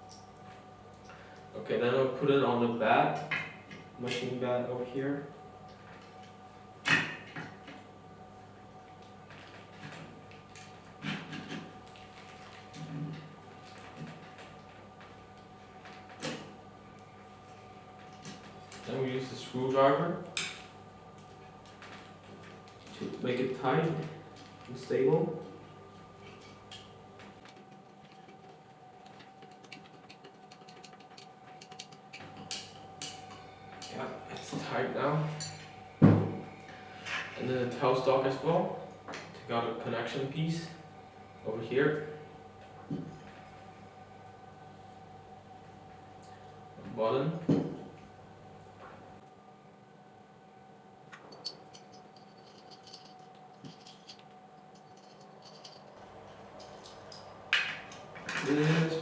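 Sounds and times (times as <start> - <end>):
low steady hum: 0.0 - 59.0
small metal parts clicking: 51.3 - 56.0.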